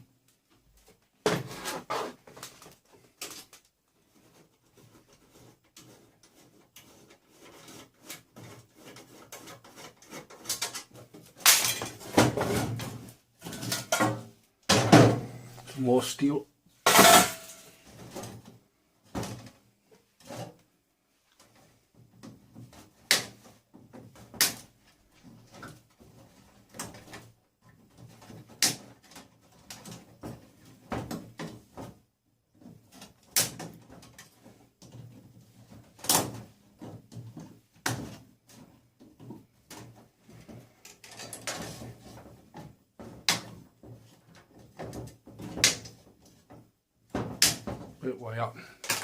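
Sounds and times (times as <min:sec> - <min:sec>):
metal parts knocking and clanking: 0:16.8 - 0:17.6, 0:48.8 - 0:49.0.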